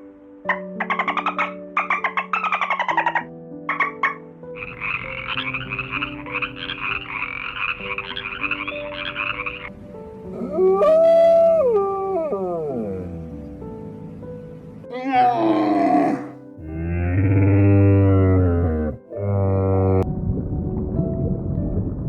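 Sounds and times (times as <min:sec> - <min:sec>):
soft background music: 0:00.0 - 0:22.0
rattling chorus of croaks: 0:00.8 - 0:09.7
animal calls: 0:04.6 - 0:09.7, 0:14.9 - 0:16.4.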